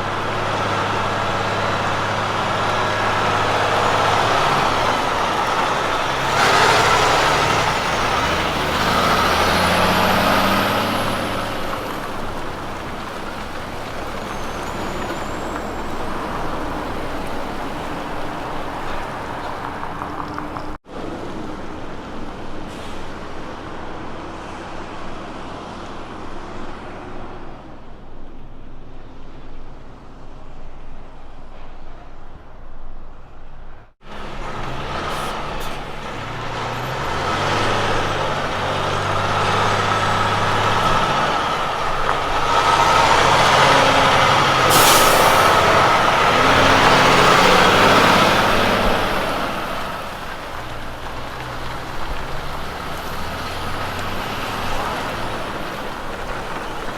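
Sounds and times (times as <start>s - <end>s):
diesel truck engine: 0.0s - 56.9s
air brake hiss: 22.7s - 23.2s, 44.5s - 46.0s.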